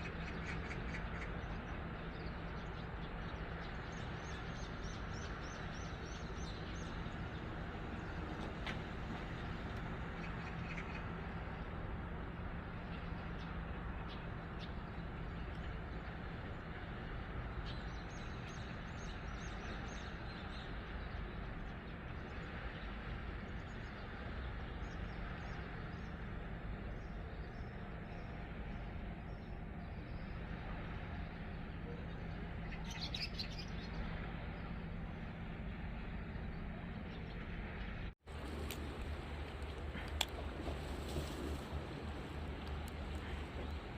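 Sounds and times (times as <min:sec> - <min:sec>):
birds chirping: 0:31.2 - 0:43.9.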